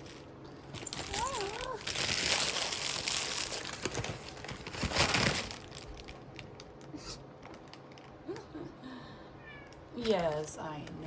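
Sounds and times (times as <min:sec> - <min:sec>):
packaging crinkling and rustling: 0:00.0 - 0:08.2.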